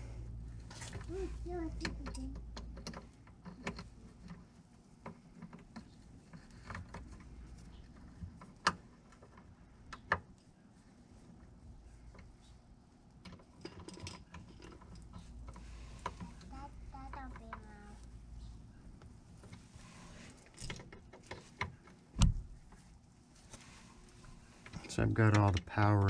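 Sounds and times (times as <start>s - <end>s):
hand tools clicking and tapping: 24.6s - 26.0s.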